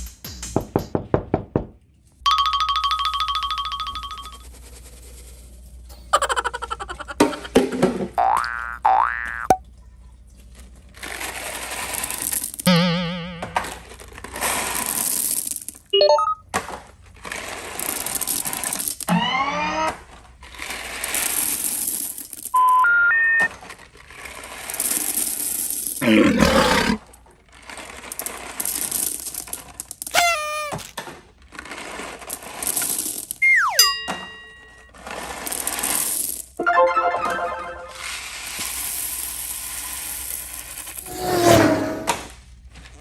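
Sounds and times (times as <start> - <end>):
cartoon rising glides: 12.7 - 13.8, 33.4 - 33.9, 36.6 - 38.2, 41.0 - 42.3
stepped rising tone: 36.6 - 38.2, 41.0 - 42.3.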